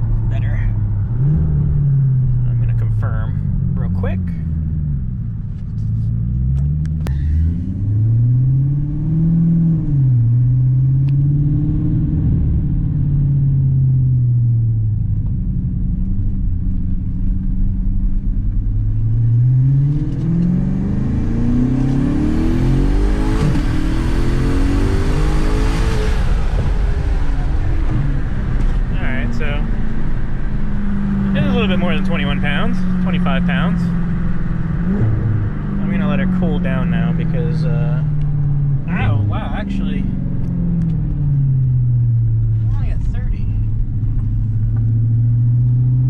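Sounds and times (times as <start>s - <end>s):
turbocharged car engine revving: 6.1s - 13.9s, 18.5s - 46.0s.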